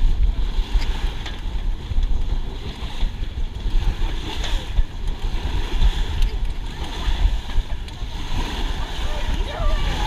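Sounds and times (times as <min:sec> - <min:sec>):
water washing along hull: 0:00.0 - 0:10.0
wind buffeting microphone: 0:00.0 - 0:10.0
small water splashes: 0:02.3 - 0:10.0.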